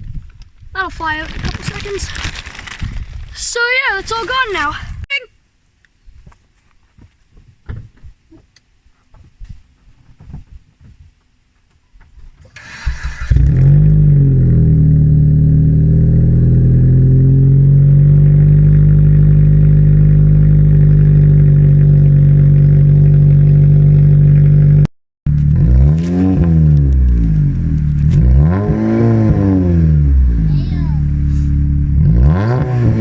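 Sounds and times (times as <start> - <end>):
car engine starting and idling: 12.4 - 33.0
engine revving: 12.6 - 33.0.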